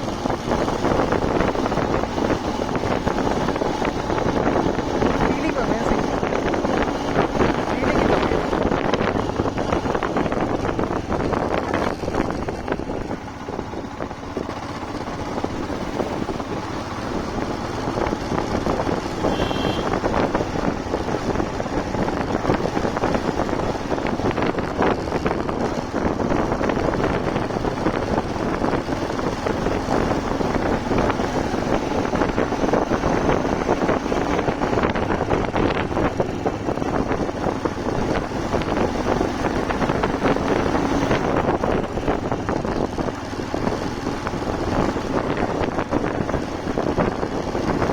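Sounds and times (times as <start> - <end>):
motorcycle engine running: 0.0 - 47.9
tyres on road: 0.0 - 47.9
wind rushing over microphone: 0.0 - 47.9
short high horn tone: 19.3 - 19.9.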